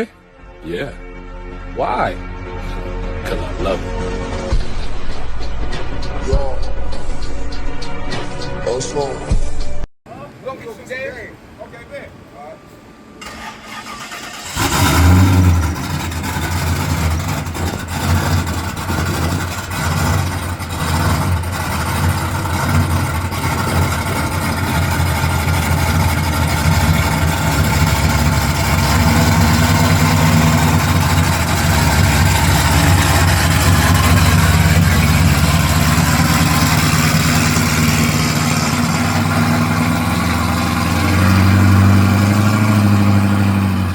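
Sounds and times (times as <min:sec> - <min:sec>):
car engine starting and running: 0:13.1 - 0:43.9.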